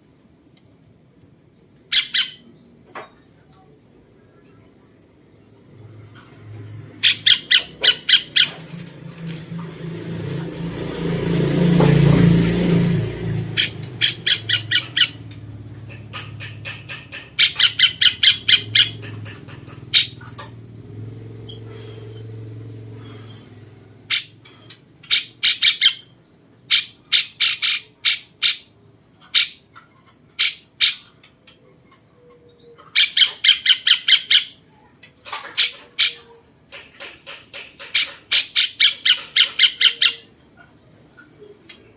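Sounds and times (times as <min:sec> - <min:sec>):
bird harsh chattering: 0:01.9 - 0:02.5, 0:07.0 - 0:08.7, 0:13.6 - 0:20.4, 0:35.5 - 0:40.3.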